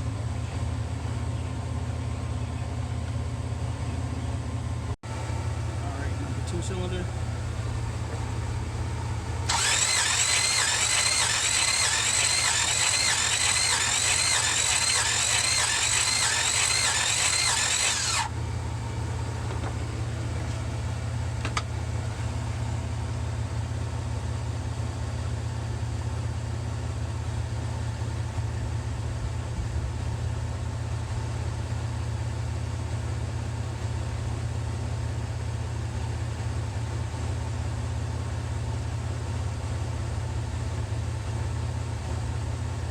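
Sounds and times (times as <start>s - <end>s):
starter cranking car engine: 6.6s - 18.4s.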